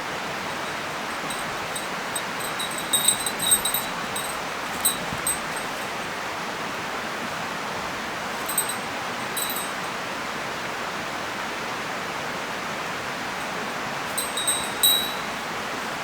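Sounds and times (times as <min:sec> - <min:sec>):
metallic clinks: 0:00.4 - 0:06.1, 0:08.4 - 0:09.9, 0:14.1 - 0:15.6.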